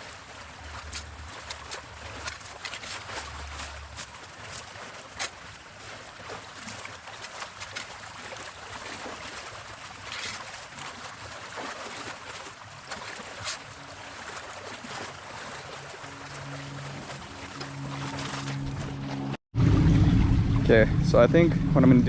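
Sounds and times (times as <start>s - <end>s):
creek flowing: 0.0s - 22.0s
branches being dragged: 15.6s - 19.4s.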